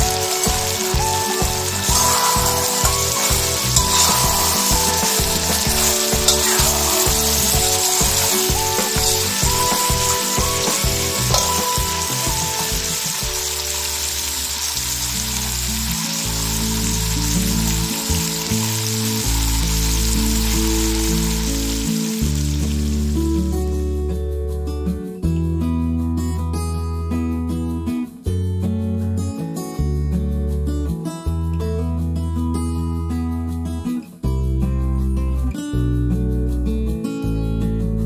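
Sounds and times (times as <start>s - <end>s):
chicken sizzling in a pan: 0.0s - 23.5s.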